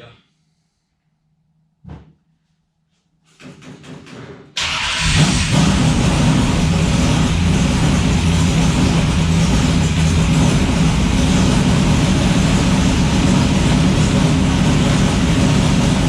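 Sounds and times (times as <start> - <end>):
engine cranking and starting: 4.6 - 8.4.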